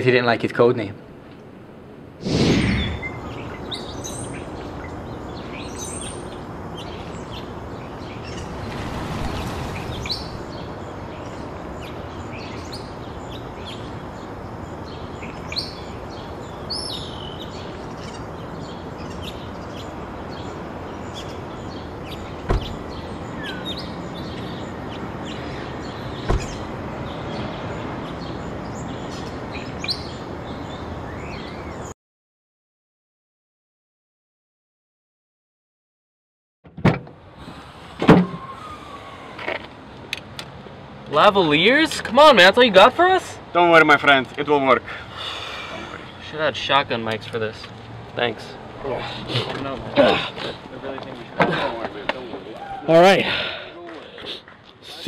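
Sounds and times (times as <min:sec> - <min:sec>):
steady background noise: 0:00.0 - 0:31.9
birds chirping: 0:02.2 - 0:32.0, 0:37.3 - 0:55.0
sharp knocks: 0:22.5 - 0:22.8.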